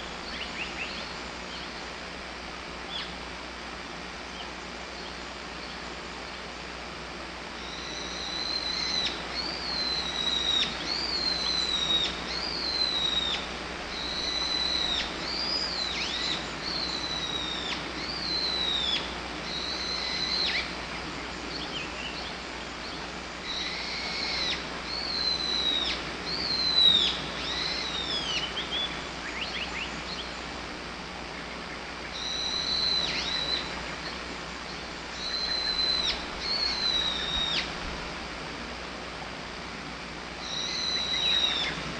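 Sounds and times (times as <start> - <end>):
faint bird calls: 7.5 - 37.8, 40.0 - 41.9
bird singing whistled phrase: 32.2 - 33.8, 35.2 - 37.7, 40.4 - 41.8.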